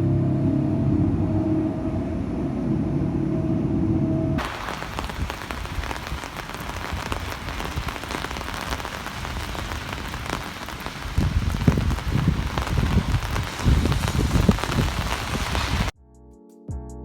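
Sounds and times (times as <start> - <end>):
low rumble: 0.0 - 8.6, 9.8 - 15.9
steady rain falling: 4.4 - 16.0.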